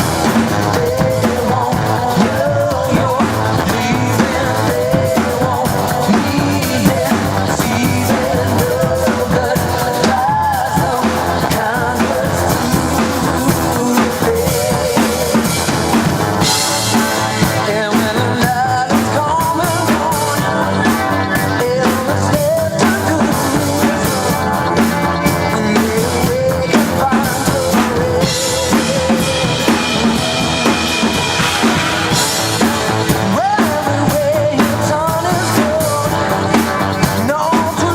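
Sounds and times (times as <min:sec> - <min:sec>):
drum kit beat: 0:00.0 - 0:37.9
wavering lead melody: 0:19.6 - 0:33.4.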